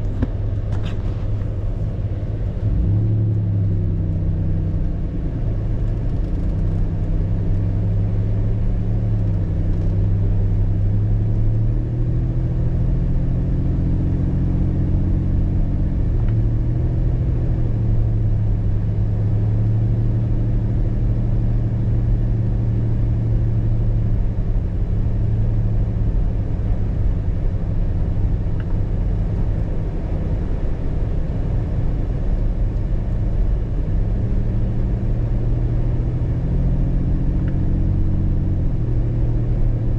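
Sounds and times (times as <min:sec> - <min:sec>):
car engine drone: 0:00.0 - 0:39.9
road rumble: 0:00.0 - 0:39.9.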